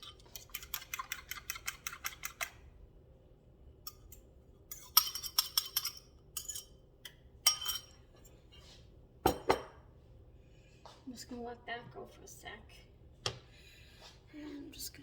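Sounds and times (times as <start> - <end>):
utensil clinking on cookware: 4.7 - 8.0.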